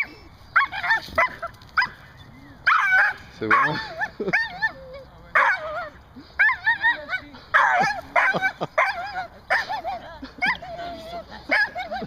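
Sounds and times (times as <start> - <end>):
dog whining and yipping: 0.6 - 2.0.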